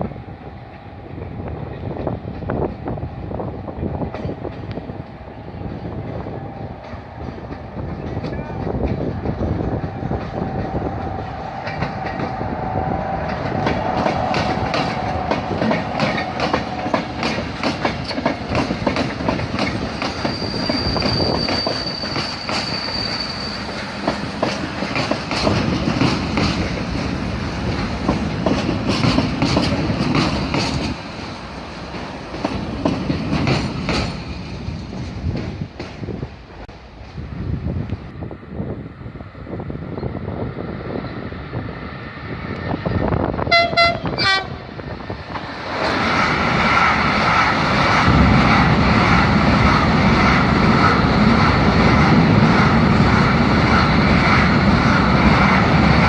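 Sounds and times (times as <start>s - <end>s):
train wheels clattering: 6.8s - 37.2s
high wheel squeal: 19.9s - 24.4s.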